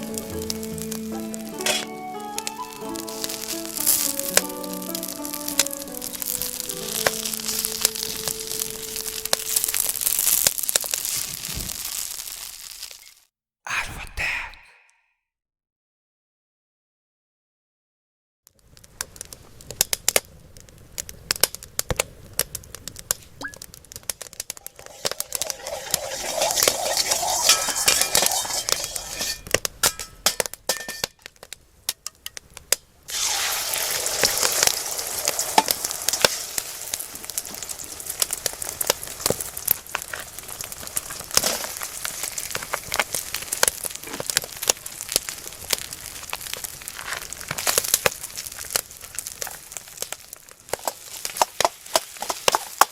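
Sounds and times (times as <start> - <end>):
food sizzling in hot oil: 0.0 - 13.3, 23.4 - 31.2, 33.1 - 52.9
sharp crackles: 0.0 - 13.3, 18.5 - 52.9.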